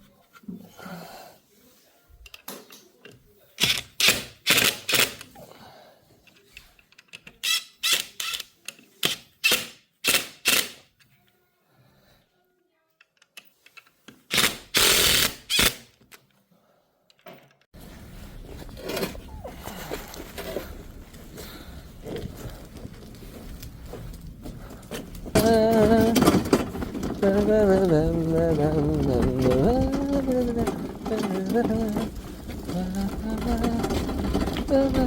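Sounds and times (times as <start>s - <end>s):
power tool bursts: 14.3s - 15.8s.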